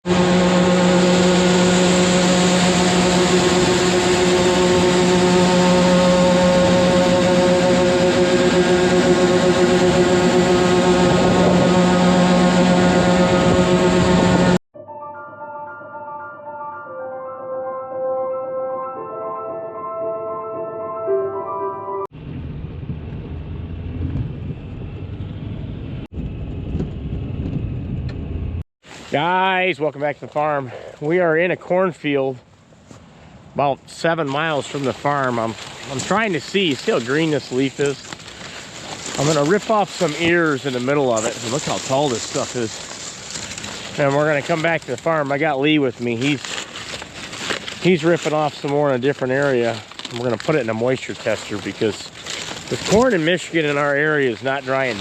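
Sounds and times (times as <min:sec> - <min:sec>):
engine humming steadily: 0:00.0 - 0:14.6, 0:34.3 - 0:55.0
music: 0:14.8 - 0:22.1
steady low rumble: 0:22.2 - 0:28.6.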